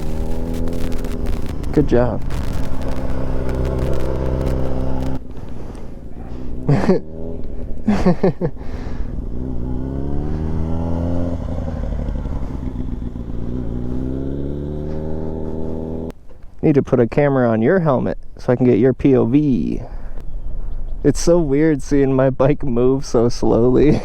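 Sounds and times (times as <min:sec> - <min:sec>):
loud gliding sounds: 0:00.0 - 0:16.0
motorcycle engine at low revs: 0:00.0 - 0:16.2.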